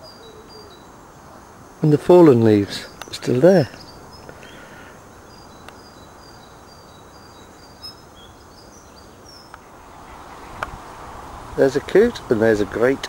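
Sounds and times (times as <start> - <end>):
outdoor background hiss: 0.0 - 13.0
small birds chirping: 0.0 - 13.0
faint clicks: 2.9 - 5.0, 5.6 - 5.8, 9.5 - 9.7, 10.6 - 10.8.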